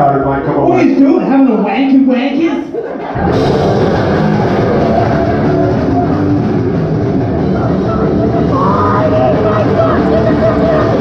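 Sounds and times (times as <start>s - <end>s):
heavy metal band playing live: 3.2s - 11.0s.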